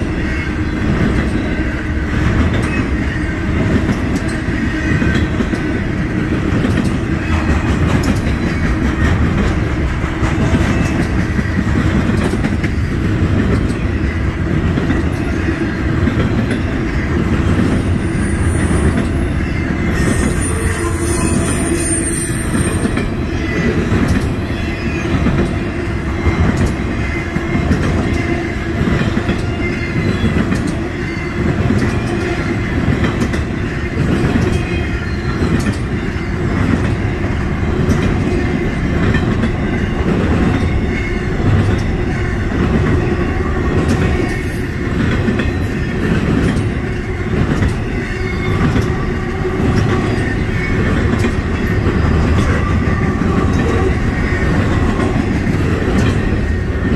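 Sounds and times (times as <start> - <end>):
train wheels rumbling on rail: 0.0 - 56.9
wheels clicking on rail: 0.0 - 56.9
faint high wheel squeal: 17.8 - 23.7.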